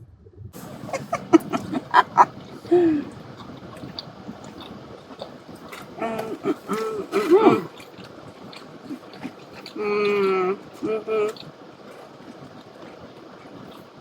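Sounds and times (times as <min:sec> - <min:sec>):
restaurant room background: 0:00.6 - 0:13.9
person humming mm: 0:06.0 - 0:07.8, 0:09.7 - 0:11.5.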